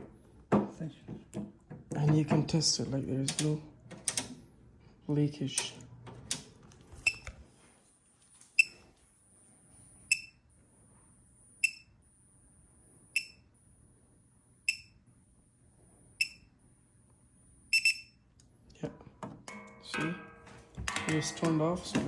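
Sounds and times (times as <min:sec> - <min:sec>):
gas detector chirping: 0:08.6 - 0:08.8, 0:10.1 - 0:10.4, 0:11.6 - 0:12.0, 0:13.1 - 0:13.5, 0:14.6 - 0:15.0, 0:16.2 - 0:16.5, 0:17.7 - 0:18.2.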